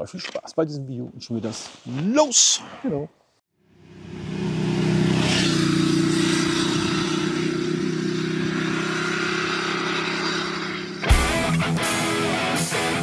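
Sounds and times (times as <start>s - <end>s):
motorcycle engine running: 3.7s - 13.0s.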